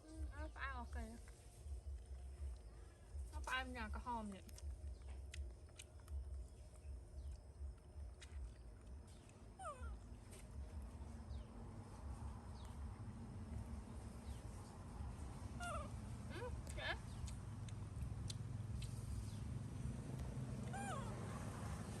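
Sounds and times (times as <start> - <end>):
low steady rumble: 0.0 - 22.0
monkey squeaking: 20.6 - 21.2.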